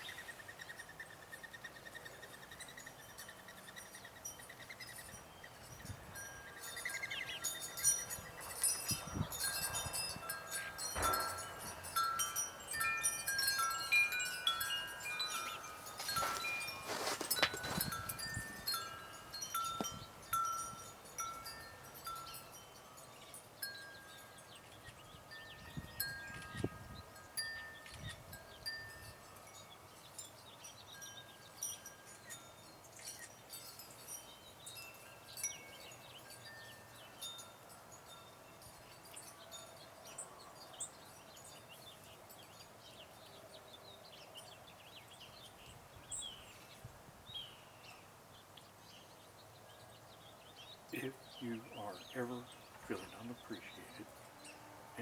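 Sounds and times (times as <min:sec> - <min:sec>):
small birds chirping: 0:00.0 - 0:55.0
wind chime ringing: 0:02.9 - 0:43.1.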